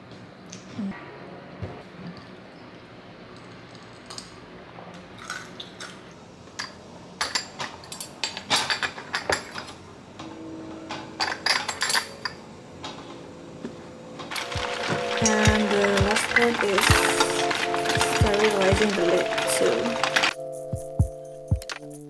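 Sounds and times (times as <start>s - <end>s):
dishes and utensils clinking: 6.6s - 9.8s, 11.2s - 12.4s, 14.3s - 20.4s
liquid sounds: 14.3s - 20.4s.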